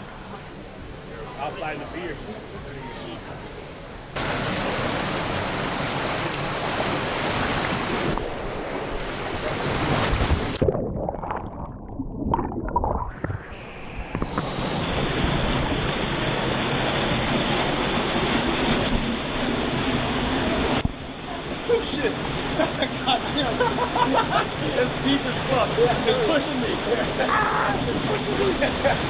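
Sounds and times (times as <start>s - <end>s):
waterfall rushing: 4.2s - 10.5s, 14.3s - 29.0s.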